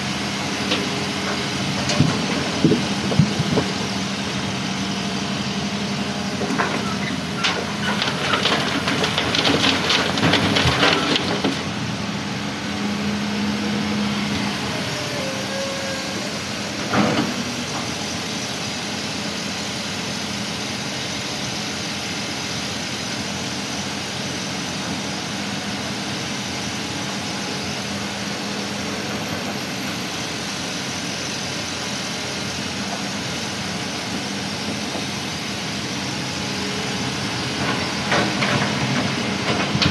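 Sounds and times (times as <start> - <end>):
heavy diesel engine running: 0.0 - 39.9
rattling clatter of stones: 0.7 - 4.0, 6.4 - 11.8, 37.5 - 39.9.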